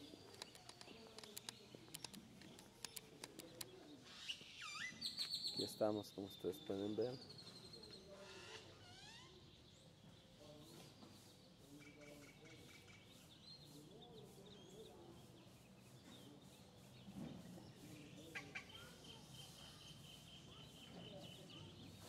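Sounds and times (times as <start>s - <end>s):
bird chirps and calls: 0.0s - 22.0s
light clicks: 0.3s - 3.7s.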